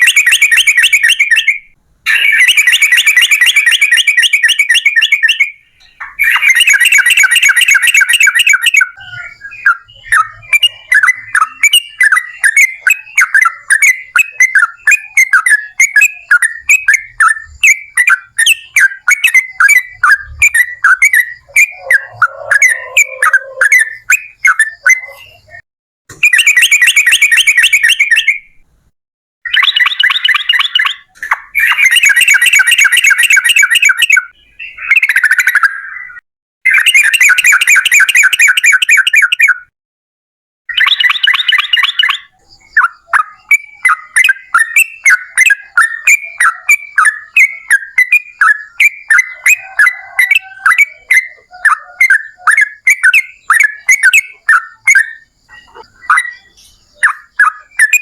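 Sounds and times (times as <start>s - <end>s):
bird singing trills and chirps: 0.0s - 28.7s, 29.5s - 39.7s, 40.7s - 58.0s.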